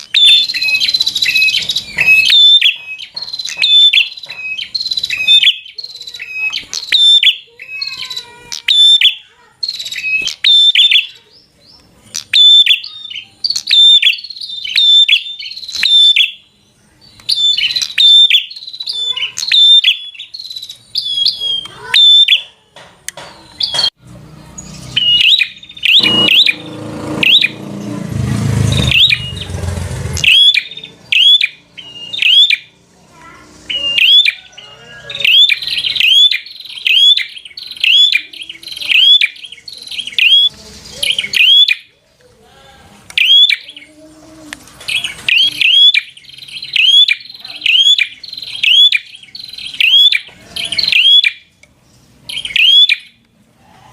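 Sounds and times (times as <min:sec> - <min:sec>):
bird clicking chirps: 0:00.0 - 0:11.2, 0:11.8 - 0:16.4, 0:17.2 - 0:23.9.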